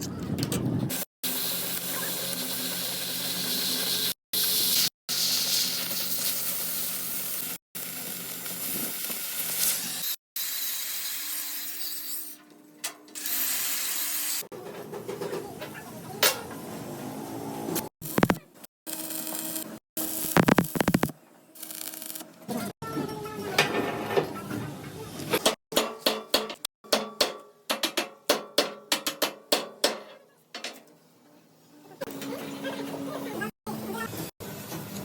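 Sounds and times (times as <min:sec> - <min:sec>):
welding arc crackling: 0:00.9 - 0:10.2, 0:18.0 - 0:22.3.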